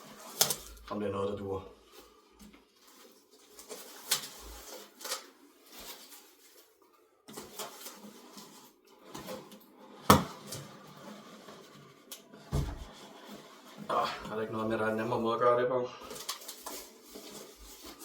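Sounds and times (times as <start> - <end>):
cardboard box scraping and rustling: 7.3 - 13.9, 16.5 - 18.0
dull thump: 12.5 - 12.9.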